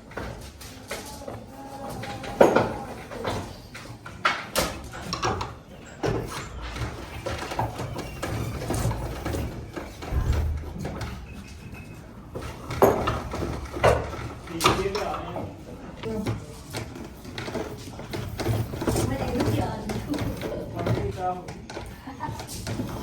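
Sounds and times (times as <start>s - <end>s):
machine hum: 5.8s - 21.0s.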